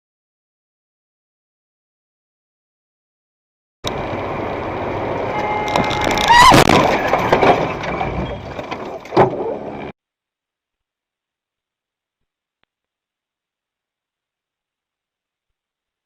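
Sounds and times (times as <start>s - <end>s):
road and engine noise: 3.8s - 10.0s
loud squeal: 5.3s - 8.6s.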